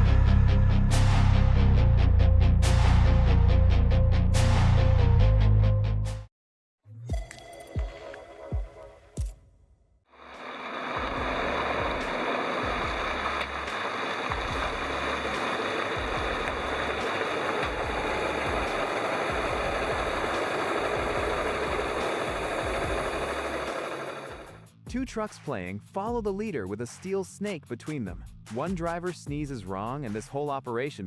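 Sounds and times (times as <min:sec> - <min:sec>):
heavy truck engine and road noise: 0:10.4 - 0:24.4.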